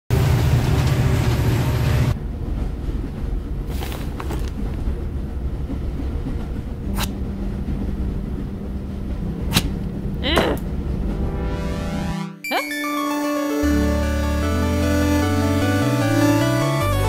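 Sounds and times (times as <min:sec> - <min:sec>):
train rumbling in motion: 0:00.1 - 0:11.4.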